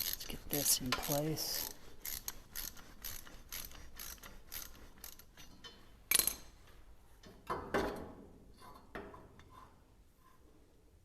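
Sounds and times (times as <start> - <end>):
hand ratchet clicking: 0.0 - 6.4.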